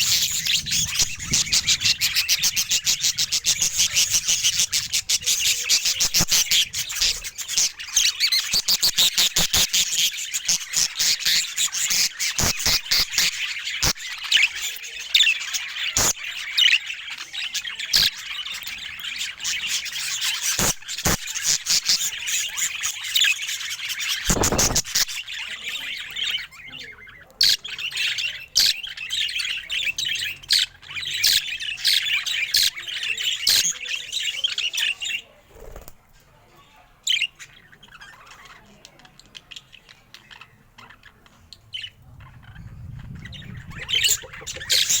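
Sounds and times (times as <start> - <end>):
bird squawks: 0.0 - 16.9, 19.3 - 28.0, 39.4 - 45.0
budgerigar chatter: 0.0 - 45.0.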